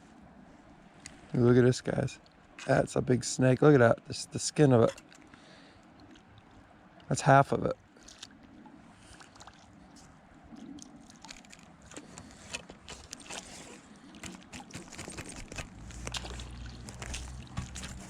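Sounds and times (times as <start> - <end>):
water sloshing and splashing: 4.7 - 7.2, 7.8 - 18.0.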